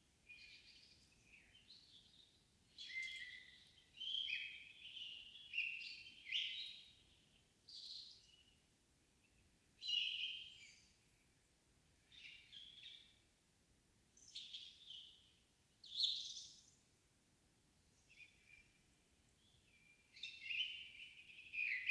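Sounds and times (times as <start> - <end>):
songbirds singing: 0.2 - 11.4, 12.0 - 13.4, 14.1 - 16.9, 17.8 - 21.9.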